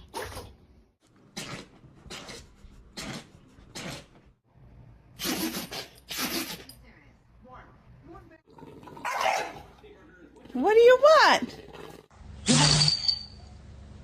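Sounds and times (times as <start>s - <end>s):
dog sneezing: 5.2s - 6.8s.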